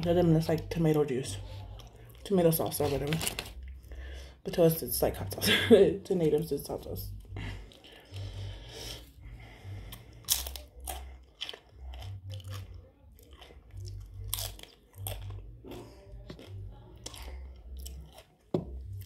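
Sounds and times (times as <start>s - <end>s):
tortilla chips crunching: 1.7s - 3.8s, 7.4s - 9.1s, 9.8s - 19.0s.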